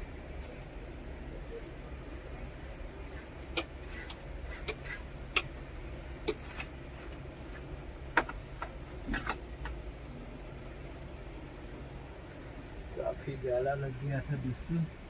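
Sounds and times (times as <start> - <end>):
steady low hum: 0.0 - 15.0
sharp clicks and light knocks: 8.1 - 9.8.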